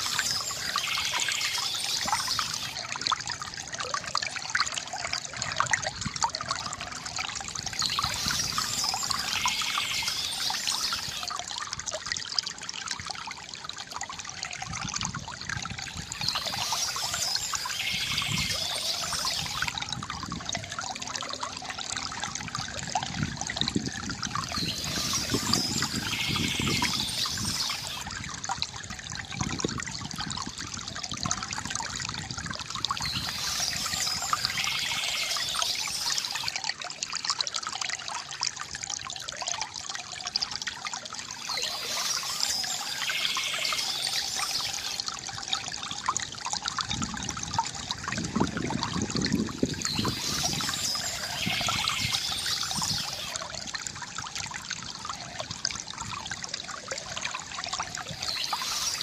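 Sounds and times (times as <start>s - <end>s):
water trickling and gurgling: 0.0s - 59.0s
bird chirping: 16.2s - 19.7s, 24.5s - 28.0s, 33.0s - 36.5s, 41.5s - 45.0s, 49.8s - 53.3s, 58.2s - 59.0s.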